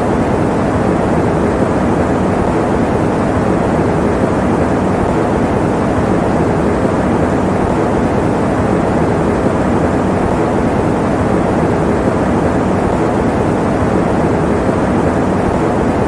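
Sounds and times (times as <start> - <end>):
electric fan running: 0.0 - 16.0.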